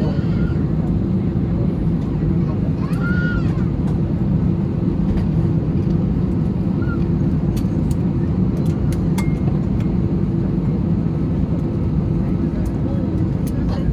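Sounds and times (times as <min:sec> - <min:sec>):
airplane cabin rumble: 0:00.0 - 0:13.9.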